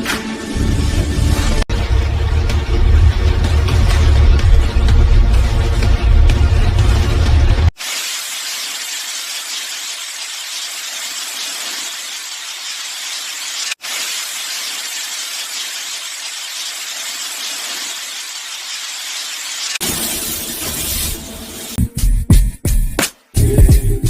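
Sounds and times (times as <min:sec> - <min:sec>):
steady spraying hiss: 0:07.8 - 0:21.8.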